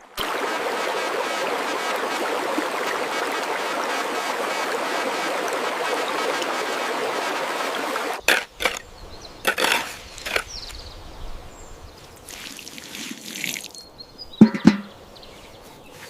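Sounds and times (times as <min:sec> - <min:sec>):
running water: 0:00.0 - 0:16.0
sharp knocks or clicks: 0:14.4 - 0:15.0.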